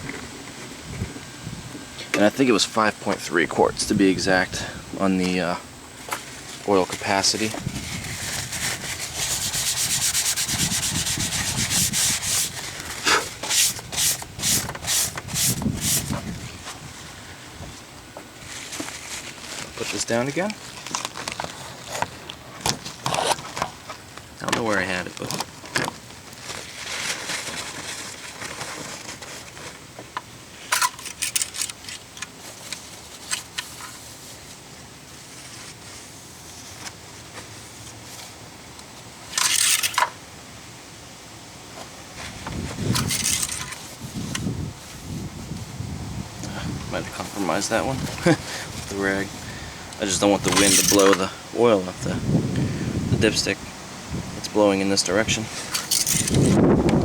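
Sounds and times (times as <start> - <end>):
wind on microphone: 0.0 - 1.9, 7.5 - 17.8, 42.2 - 43.2, 44.0 - 50.5, 51.9 - 54.5, 56.1 - 57.0
cloth rag rubbing: 7.2 - 16.2.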